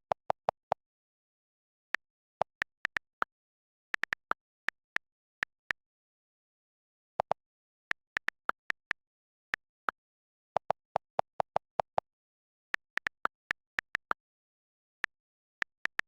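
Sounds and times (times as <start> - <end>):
lower-pitched ticks: 7.2 - 10.0, 12.7 - 14.2
sharp pitched clicks: 10.6 - 14.2.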